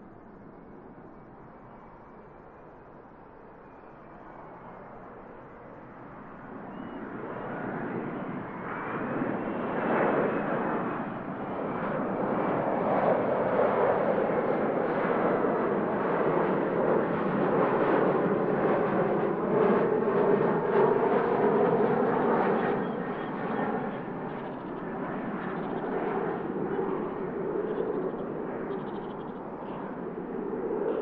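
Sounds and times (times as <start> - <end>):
jet aircraft engines: 0.0 - 31.0.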